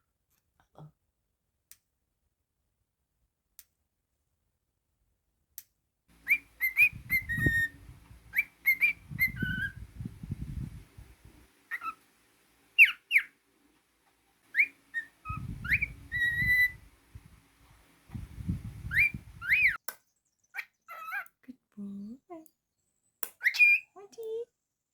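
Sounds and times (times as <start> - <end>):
cockatiel whistling: 6.2 - 10.0, 11.7 - 12.1, 12.8 - 13.4, 14.5 - 17.3, 18.2 - 19.8, 23.4 - 23.9
low rustle: 6.2 - 12.8, 13.6 - 19.8.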